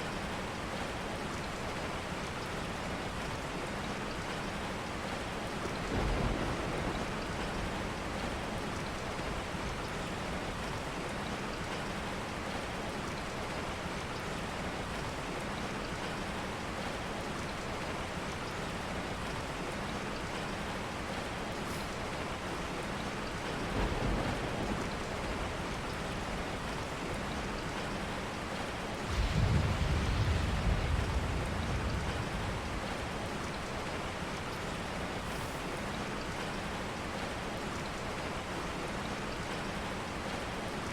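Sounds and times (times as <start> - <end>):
steady rain: 0.0 - 40.9
low rumbles: 29.1 - 34.4.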